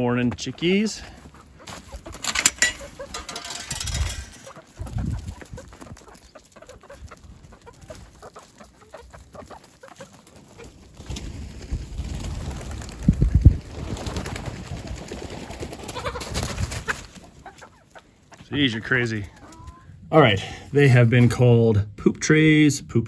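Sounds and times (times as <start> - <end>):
chickens clucking: 0.2 - 12.2, 13.7 - 20.0
rustling: 1.7 - 6.8.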